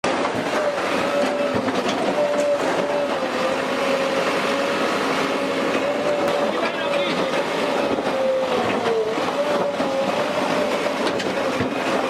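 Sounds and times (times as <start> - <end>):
bulldozer engine running: 0.0 - 12.0.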